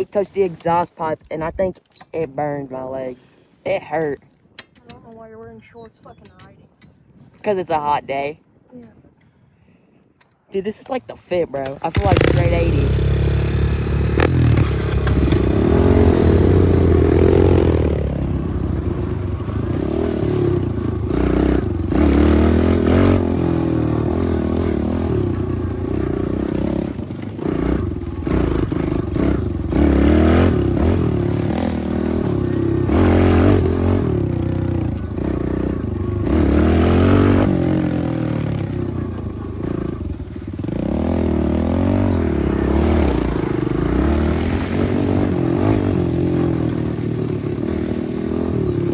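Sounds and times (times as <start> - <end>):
pit bike engine revving: 11.4 - 48.9.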